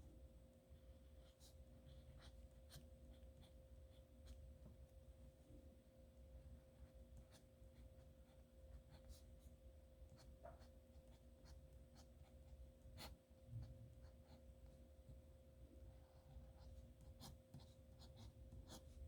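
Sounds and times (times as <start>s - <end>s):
pen scratching on paper: 10.2s - 13.2s, 15.9s - 19.0s.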